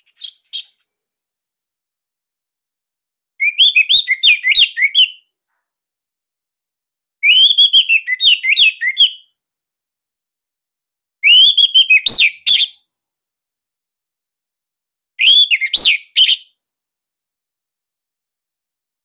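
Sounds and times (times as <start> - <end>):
thrush singing whistled phrases: 0.0 - 1.0, 3.4 - 5.2, 7.2 - 9.3, 11.2 - 12.8, 15.2 - 16.5.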